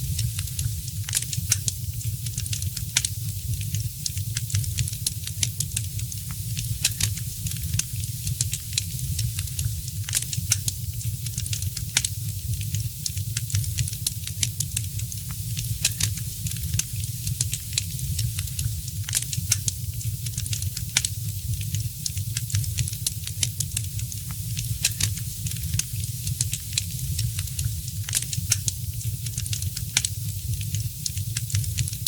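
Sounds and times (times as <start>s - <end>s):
fire crackling and popping: 0.0s - 32.0s
low fire rumble: 0.0s - 32.0s.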